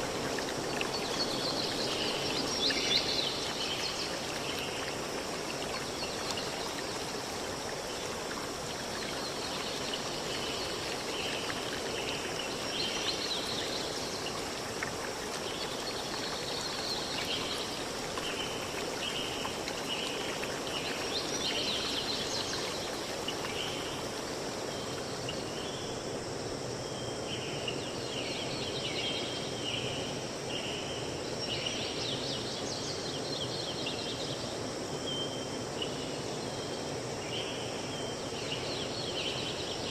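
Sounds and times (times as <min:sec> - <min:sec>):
river stream rushing: 0:00.0 - 0:24.6.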